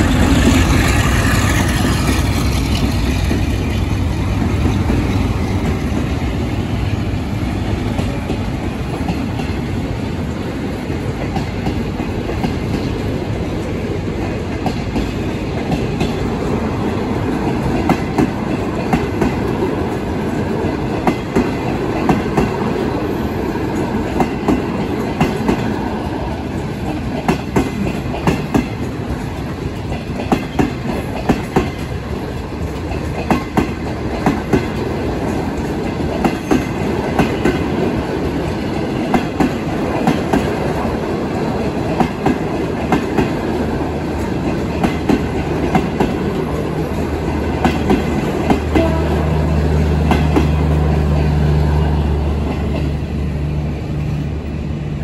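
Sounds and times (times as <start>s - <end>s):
train rumbling on rails: 0.0s - 55.0s
wheels clicking over rail joints: 10.7s - 49.1s.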